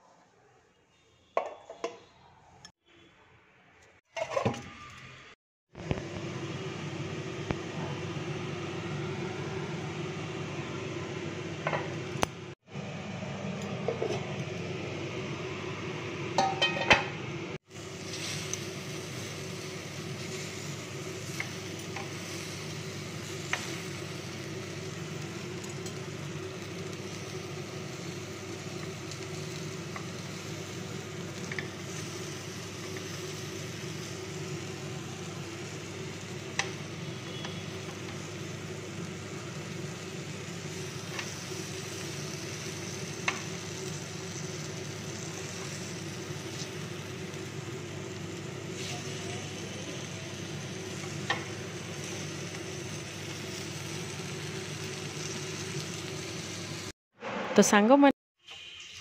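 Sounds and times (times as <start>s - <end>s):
chicken sizzling on grill pan: 17.6s - 56.9s.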